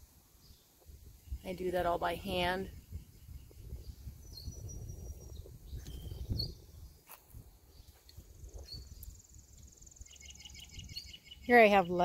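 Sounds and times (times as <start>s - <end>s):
high bird chirps: 2.7s - 7.0s, 7.7s - 12.0s.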